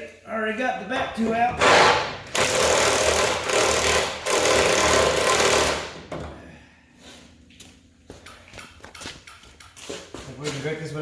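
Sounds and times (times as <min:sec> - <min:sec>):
impact wrench hammering on bolt: 0:01.6 - 0:06.2.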